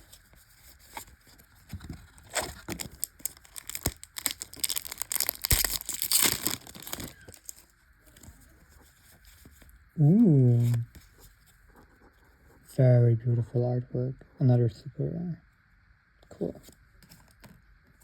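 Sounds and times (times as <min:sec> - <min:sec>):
foil wrapper crinkling: 0:01.0 - 0:08.5.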